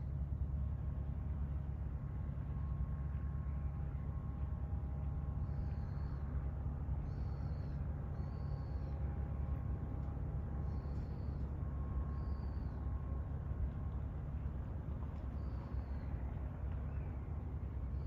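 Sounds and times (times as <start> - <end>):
faint hum: 0.0 - 18.0
low harbour rumble: 0.0 - 18.0.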